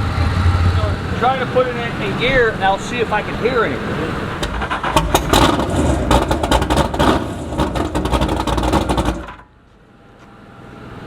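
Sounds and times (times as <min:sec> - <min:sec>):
boat engine rumble: 0:00.0 - 0:09.9
sharp clicks and clunks: 0:04.3 - 0:09.5.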